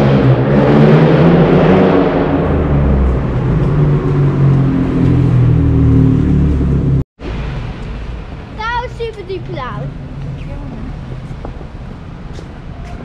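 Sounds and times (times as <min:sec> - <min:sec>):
vehicle engine passing: 0:00.0 - 0:13.0
traffic hiss: 0:07.2 - 0:13.0.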